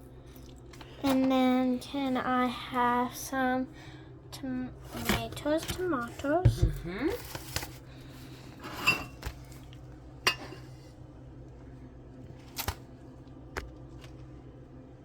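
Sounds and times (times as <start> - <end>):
dishes and utensils clicking: 10.3 - 10.7.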